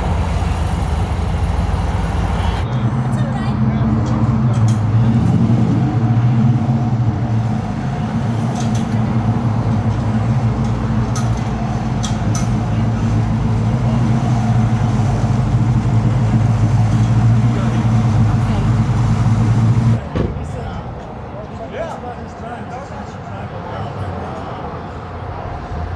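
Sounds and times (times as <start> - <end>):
car engine idling: 0.0 - 3.0, 6.5 - 20.0.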